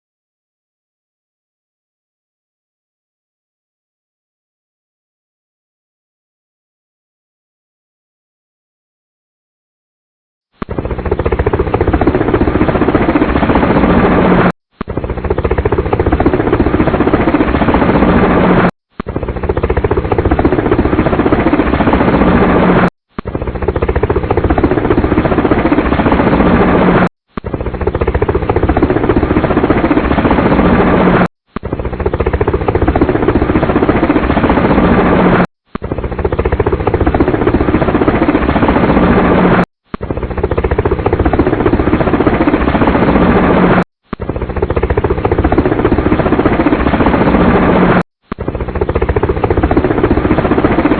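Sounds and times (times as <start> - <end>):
helicopter rotor and engine: 10.6 - 50.9.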